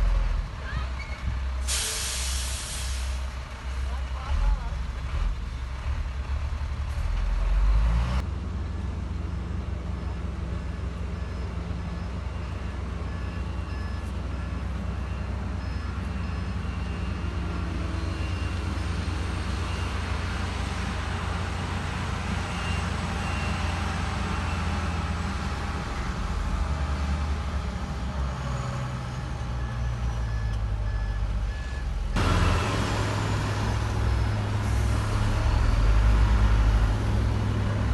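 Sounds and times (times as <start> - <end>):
heavy diesel machinery droning: 0.0 - 37.9
reversing beeper: 11.0 - 20.5, 26.0 - 36.8.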